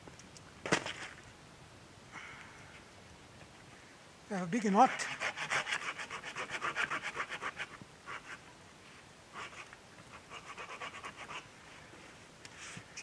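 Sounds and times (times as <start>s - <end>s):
hand saw cutting wood: 4.8s - 8.4s, 10.2s - 11.4s.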